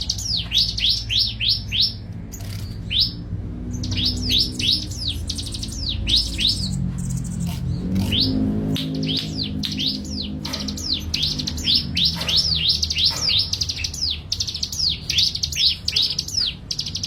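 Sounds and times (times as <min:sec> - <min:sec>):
songbird calling high notes: 0:03.8 - 0:17.0.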